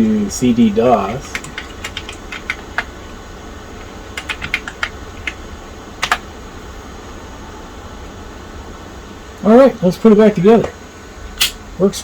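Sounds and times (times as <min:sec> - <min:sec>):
steady low hum: 0:00.0 - 0:12.0
keyboard key clicks: 0:06.0 - 0:06.2.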